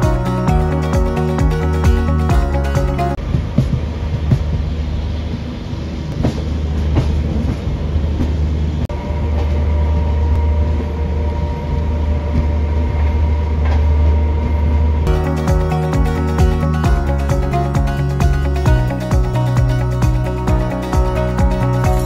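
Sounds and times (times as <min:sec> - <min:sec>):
train wheels clicking on rails: 0:03.2 - 0:08.4
train coaches rumbling: 0:03.2 - 0:14.7.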